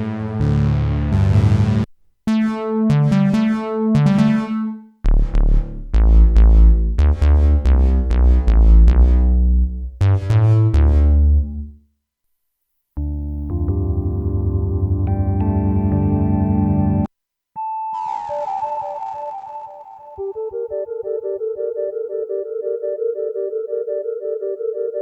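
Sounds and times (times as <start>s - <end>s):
heavy synth bass line: 0.0s - 11.7s
plucked synthesizer notes: 0.0s - 11.7s, 13.0s - 17.1s, 18.0s - 25.0s.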